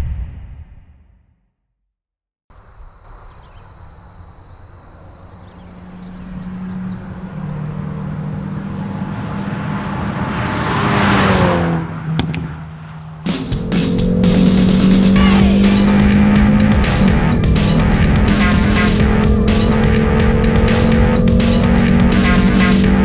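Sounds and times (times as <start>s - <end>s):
car engine passing by: 4.0s - 23.0s
sharp clicks: 12.2s - 12.6s.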